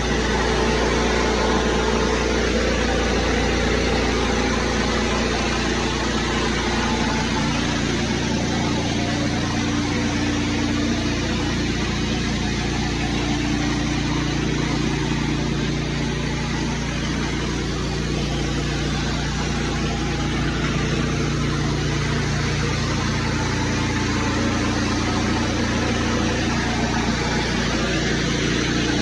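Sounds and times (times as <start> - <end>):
petrol engine running: 0.0 - 29.0.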